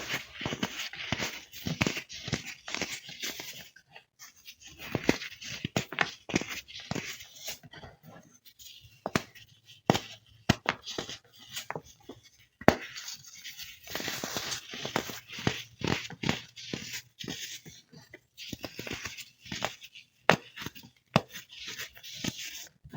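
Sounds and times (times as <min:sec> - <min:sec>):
baked baking soda cracking: 0:12.6 - 0:17.6.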